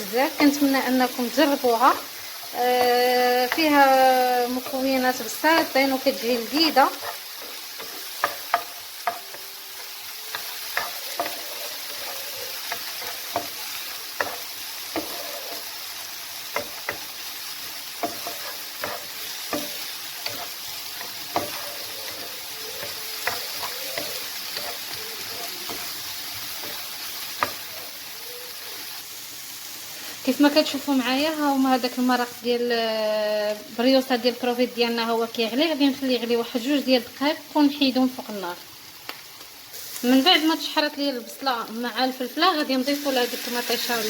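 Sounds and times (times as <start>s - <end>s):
vegetables sizzling in a frying pan: 0.0s - 44.0s
utensil stirring against pan: 0.2s - 29.3s.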